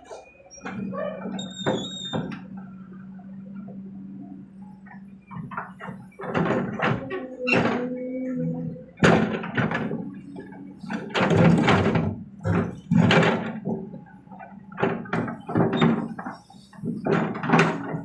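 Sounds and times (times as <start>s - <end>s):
faint engine hum: 0.0s - 18.0s
heavy thuds and knocks: 5.3s - 18.0s.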